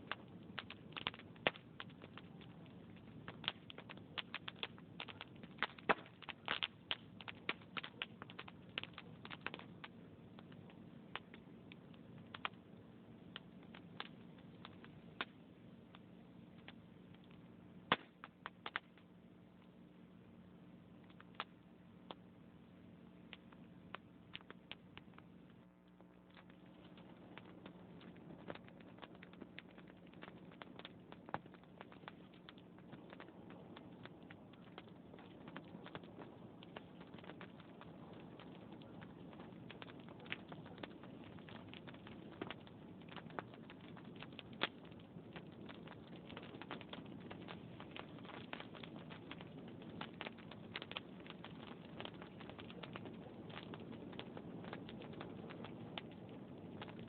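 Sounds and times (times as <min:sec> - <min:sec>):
steady low hum: 0:00.0 - 0:57.0
wood fire crackling: 0:00.0 - 0:57.0.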